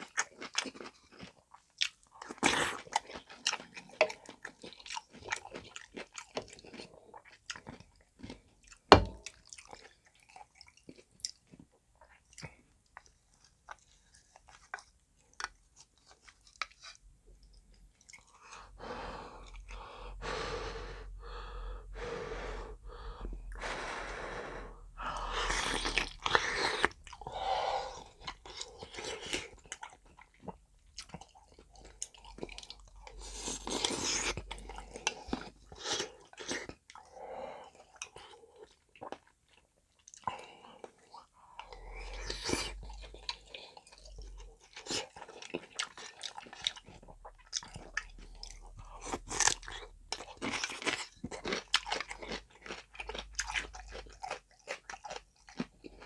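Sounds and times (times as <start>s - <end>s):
person chewing: 0.0s - 56.0s.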